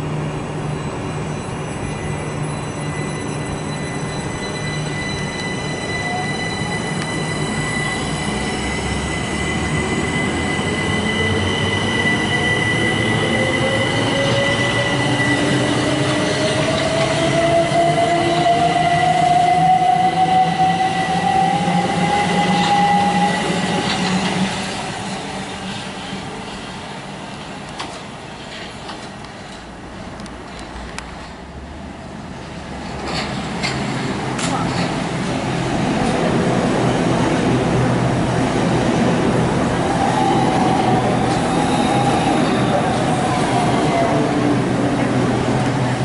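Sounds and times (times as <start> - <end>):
wheels rumbling on rail: 0.0 - 46.0
steady high tone: 0.6 - 25.4.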